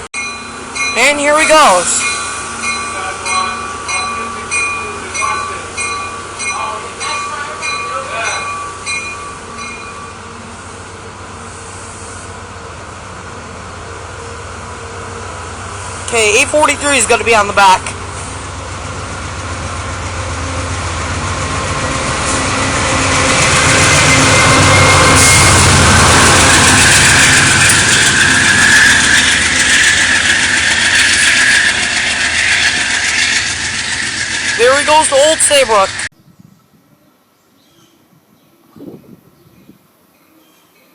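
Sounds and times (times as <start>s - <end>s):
train rumbling: 0.0s - 36.1s
train bell ringing: 0.2s - 10.6s, 23.0s - 36.1s.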